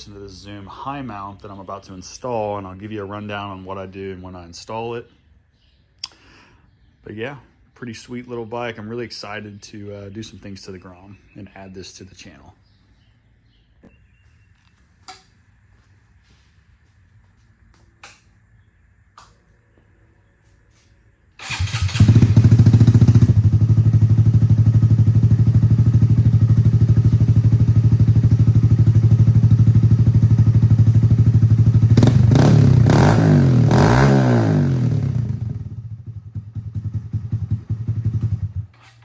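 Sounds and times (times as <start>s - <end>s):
motorcycle engine revving: 21.4s - 39.0s.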